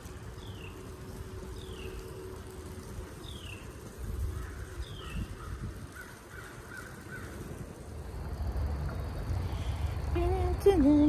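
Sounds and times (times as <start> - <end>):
wind rumble on microphone: 0.1 - 11.0
birds calling: 0.2 - 7.9.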